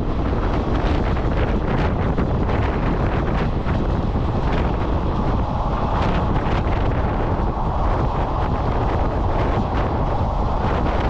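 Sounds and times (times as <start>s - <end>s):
passenger train running: 0.0s - 11.0s
wind buffeting microphone: 0.0s - 11.0s.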